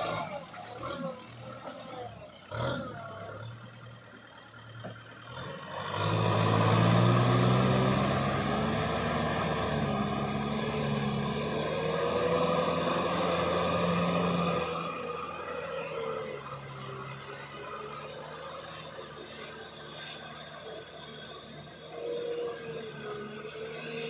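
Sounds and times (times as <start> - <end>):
diesel engine under load: 0.0 - 24.0.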